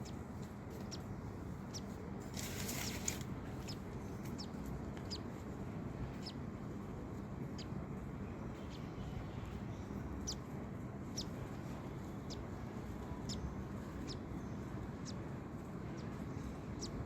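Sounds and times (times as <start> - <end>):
steady low hum: 0.0 - 17.0
bird chick cheeping: 1.7 - 5.3, 6.1 - 6.4, 7.5 - 7.8, 8.4 - 17.0.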